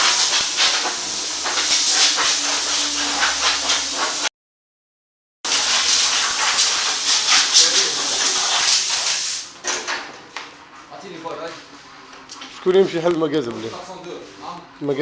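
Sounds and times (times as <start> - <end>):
steady hiss: 0.0 - 4.3, 5.5 - 9.6.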